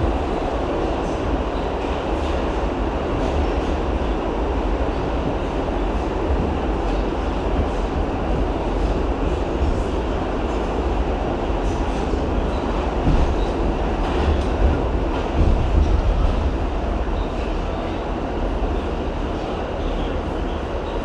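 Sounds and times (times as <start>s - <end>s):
subway train rumbling with rail clatter: 0.0s - 21.0s.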